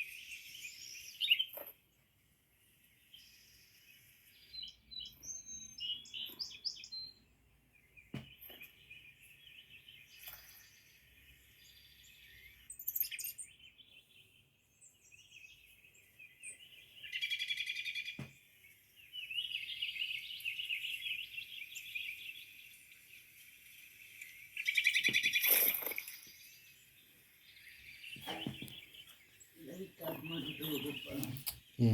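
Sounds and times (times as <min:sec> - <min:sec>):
small birds chirping and twittering: 0:00.0 - 0:31.9
fast rattling bird chatter: 0:28.1 - 0:31.9.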